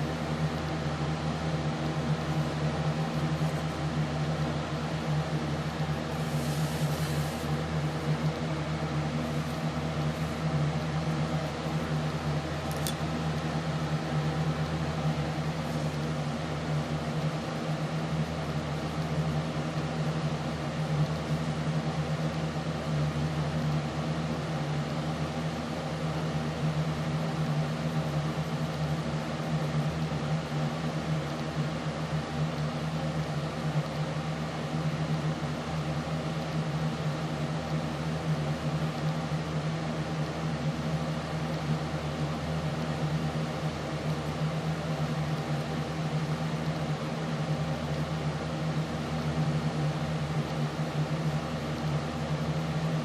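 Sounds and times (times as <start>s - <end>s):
steady machine hum: 0.0s - 53.0s.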